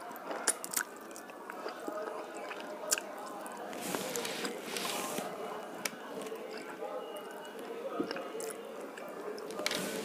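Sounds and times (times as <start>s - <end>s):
wet chewing and lip smacks: 0.2s - 3.5s.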